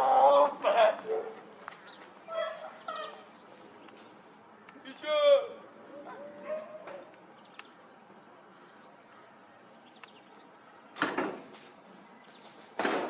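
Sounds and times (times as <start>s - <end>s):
faint background noise: 0.0s - 13.0s
dog barking: 1.0s - 1.4s, 6.0s - 7.0s.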